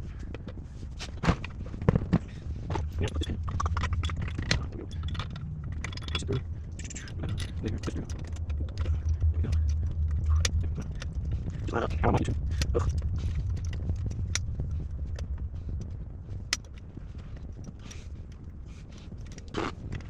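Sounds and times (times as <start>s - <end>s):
low steady hum: 0.0s - 20.0s
metal tools clinking and scraping: 2.8s - 13.0s.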